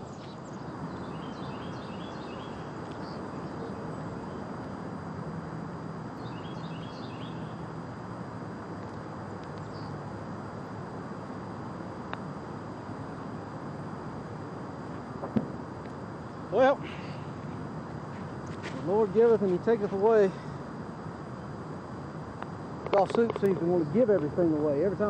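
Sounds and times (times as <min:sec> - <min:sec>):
small bird chirping: 0:00.0 - 0:04.5, 0:06.2 - 0:07.6, 0:09.6 - 0:10.0
outdoor background noise: 0:00.0 - 0:25.0.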